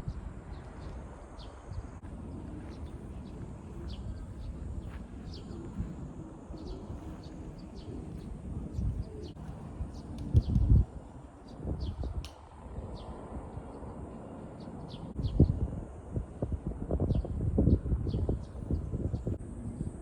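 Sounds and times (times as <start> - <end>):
birds chirping: 0.0 - 15.7
steady low rumble: 0.0 - 20.0
wind gust on microphone: 0.0 - 20.0.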